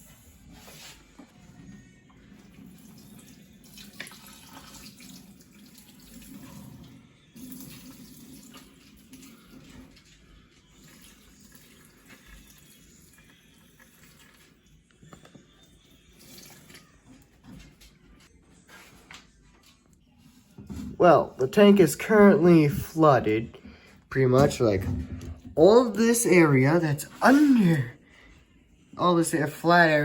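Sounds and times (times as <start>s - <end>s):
water pouring and splashing: 2.5s - 14.7s, 16.1s - 16.8s.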